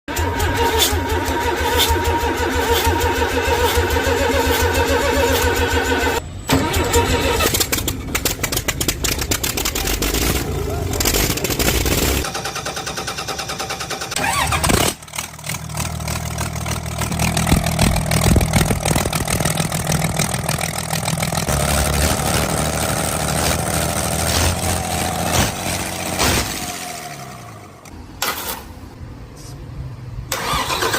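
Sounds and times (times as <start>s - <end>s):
diesel engine running: 0.1s - 28.4s
starter motor cranking: 11.0s - 16.0s, 30.3s - 30.9s.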